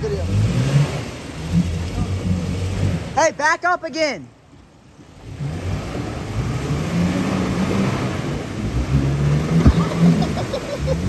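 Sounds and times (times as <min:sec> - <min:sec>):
pickup truck engine revving: 0:00.0 - 0:03.2, 0:05.2 - 0:11.0
sharp knock: 0:09.6 - 0:10.0.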